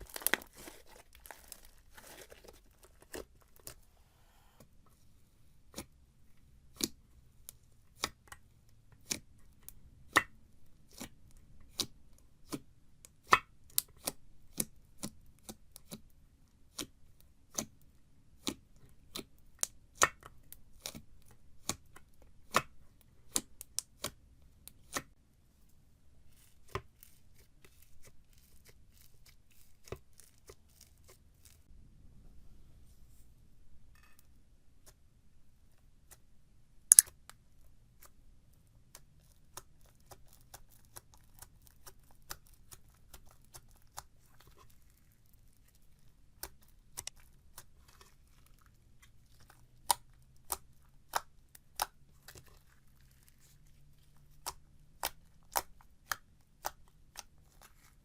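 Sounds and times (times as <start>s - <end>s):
slime popping: 0.0s - 3.7s, 36.9s - 37.2s
slime crackling: 0.0s - 3.8s, 26.3s - 31.7s, 38.8s - 58.0s.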